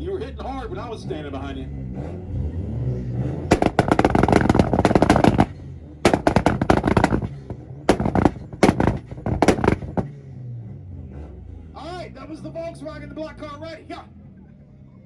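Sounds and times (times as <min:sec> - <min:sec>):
car exhaust popping: 0:03.5 - 0:10.1.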